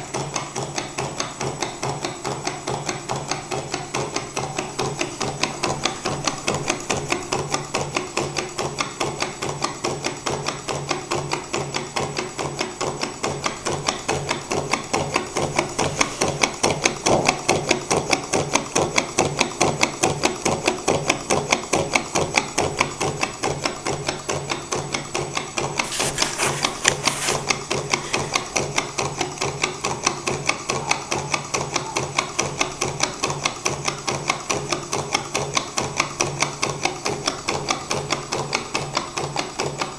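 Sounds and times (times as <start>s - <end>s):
brief hiss: 25.8s - 28.6s.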